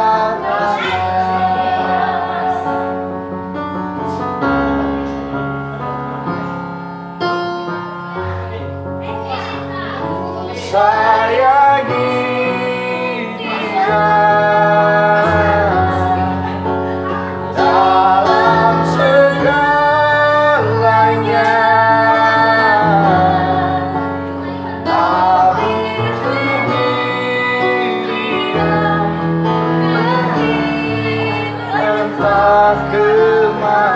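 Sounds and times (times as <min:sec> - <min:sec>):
child singing slow song: 0:00.3 - 0:02.6.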